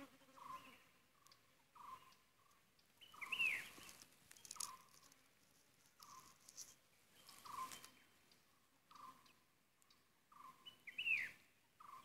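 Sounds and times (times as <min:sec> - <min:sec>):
light rustling: 0:03.5 - 0:08.0.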